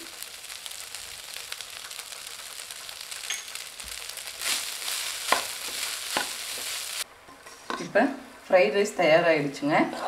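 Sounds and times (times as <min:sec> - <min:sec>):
fried rice sizzling: 0:00.0 - 0:07.7
spatula stirring and scraping: 0:02.5 - 0:07.9.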